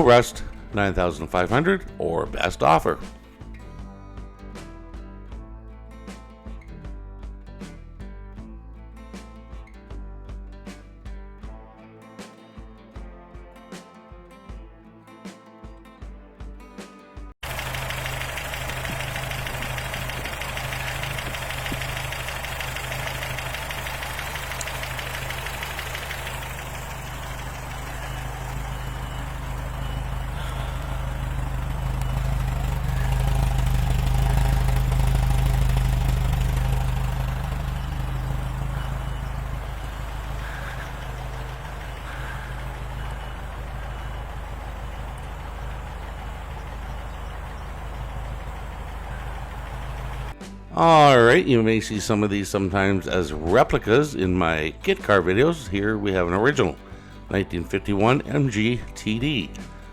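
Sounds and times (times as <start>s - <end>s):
car engine running: 17.4s - 50.4s.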